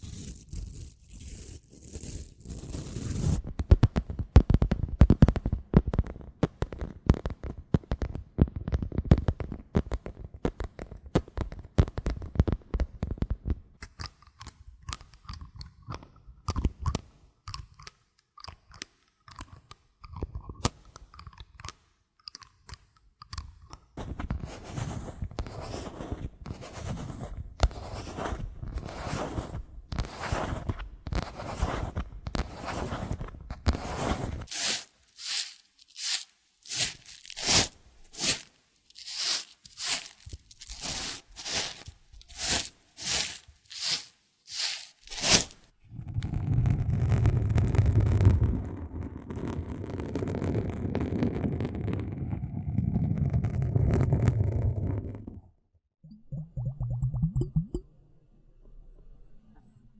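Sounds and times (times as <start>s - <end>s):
dense crunching and crackling: 0.0s - 3.4s, 24.0s - 45.7s
regular swishing strokes: 34.5s - 45.7s.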